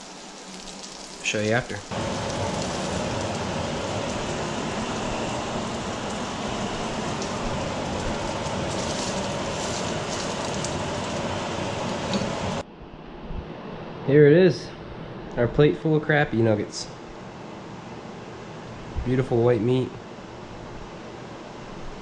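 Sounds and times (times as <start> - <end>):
food sizzling in deep-fryer oil: 0.0 - 12.6.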